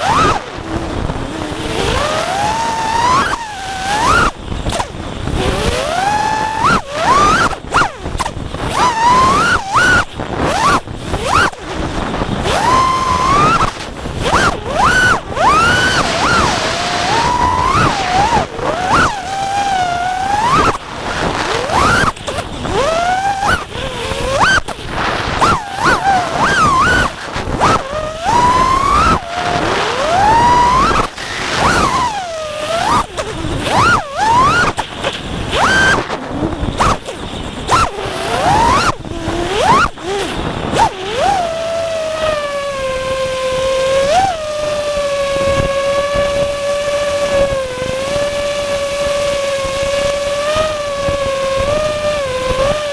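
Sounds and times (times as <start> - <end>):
drone motors whining: 0.0 - 52.9.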